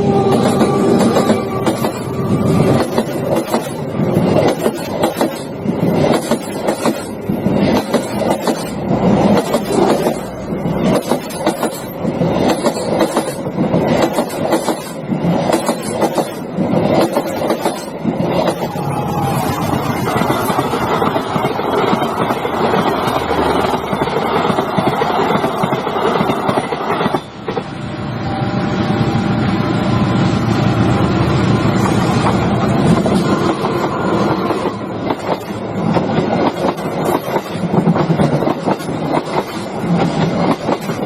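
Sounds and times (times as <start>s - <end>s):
train wheels clattering over rail joints: 0.3s - 18.7s, 31.8s - 41.0s.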